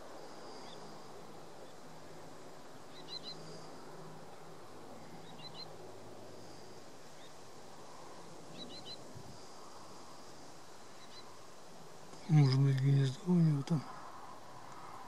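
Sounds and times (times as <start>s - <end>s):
wind hiss: 0.0s - 15.0s
bird calling: 5.0s - 5.8s, 7.1s - 10.1s, 10.8s - 11.4s.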